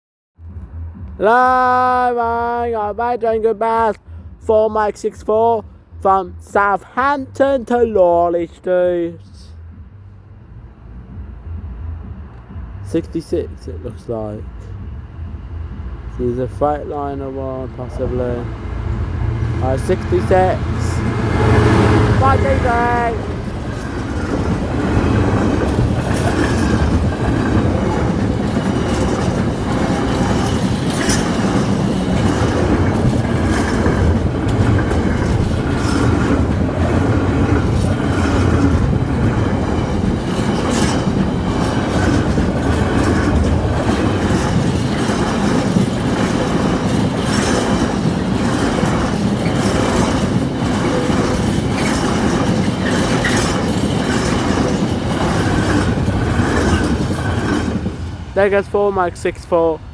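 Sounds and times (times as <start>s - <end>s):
freight train wagons rumbling: 0.4s - 59.9s
wheels clicking over rails: 16.4s - 59.8s.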